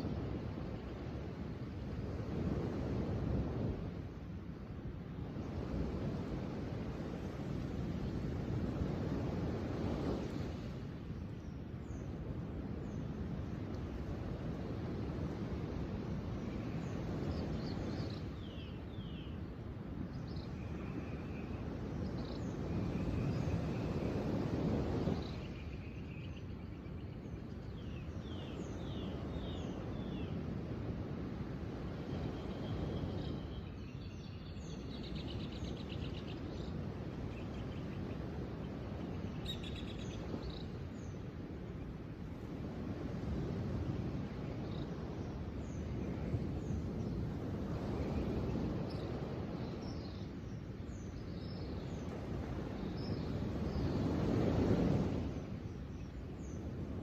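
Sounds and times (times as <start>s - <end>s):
small birds chirping: 32.4s - 41.3s.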